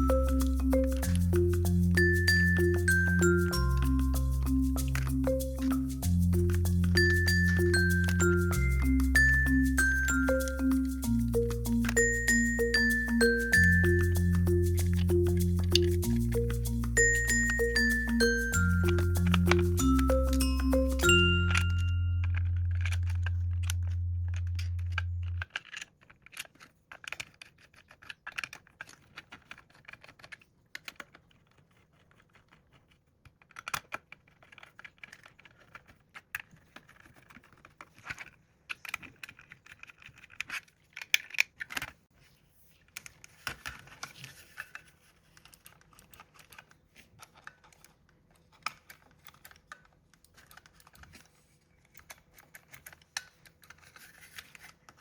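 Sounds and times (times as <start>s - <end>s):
loud low hum: 21.7s - 25.4s.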